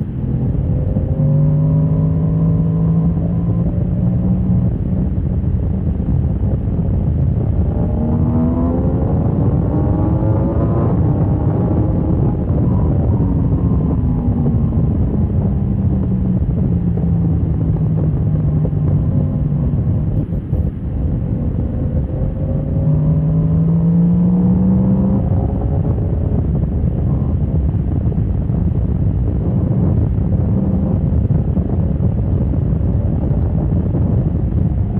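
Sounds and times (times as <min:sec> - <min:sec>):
motorcycle engine running hard: 0:00.0 - 0:34.9.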